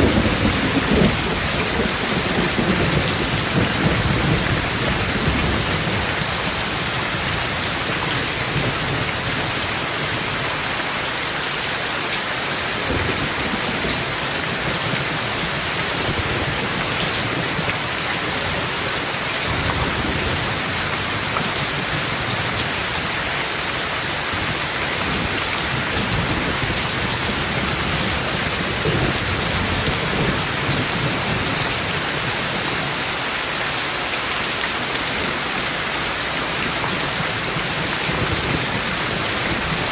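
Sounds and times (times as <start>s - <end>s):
thunder rumbling: 0.0s - 9.5s, 24.4s - 32.2s
heavy rain falling: 0.0s - 39.9s.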